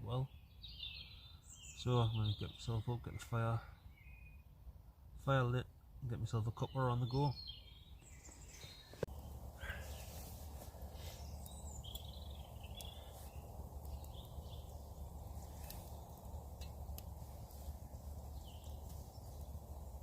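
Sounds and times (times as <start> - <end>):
birds chirping: 0.0 - 4.5, 5.3 - 20.0
steady low rumble: 9.1 - 20.0.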